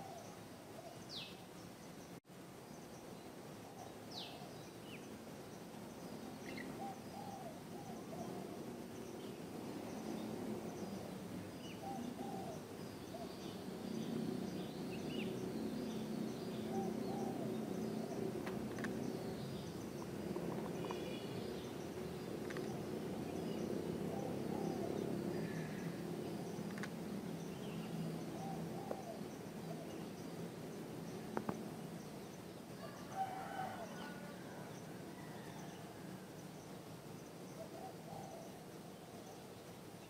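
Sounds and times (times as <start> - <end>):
low background noise: 0.0 - 40.0
small birds chirping: 0.0 - 40.0
dove cooing: 6.6 - 8.6, 11.7 - 13.3, 16.6 - 18.2, 23.8 - 26.0, 28.3 - 30.1, 37.6 - 39.3.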